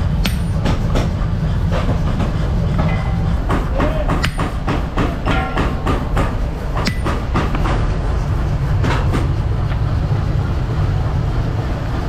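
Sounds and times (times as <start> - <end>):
sharp knocks: 0.0 - 9.4
heavy machinery rumbling: 0.0 - 12.0.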